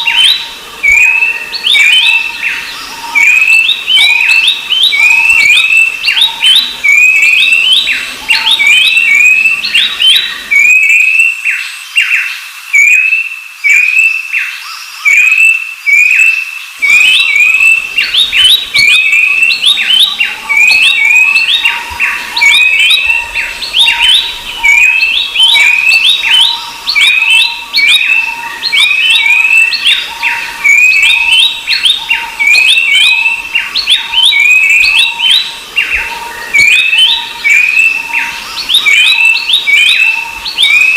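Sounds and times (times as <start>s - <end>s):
birds calling in whistled notes: 0.0s - 40.9s.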